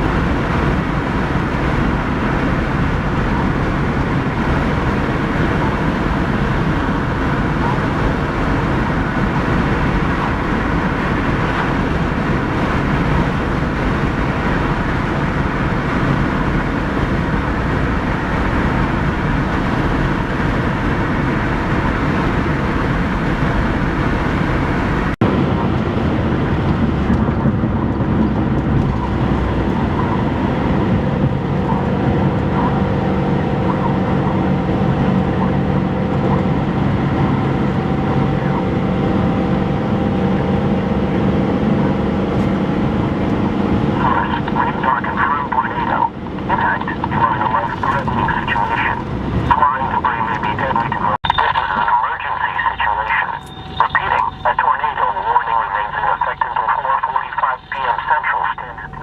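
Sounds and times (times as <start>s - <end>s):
vehicle road and wind noise: 0.0s - 59.0s.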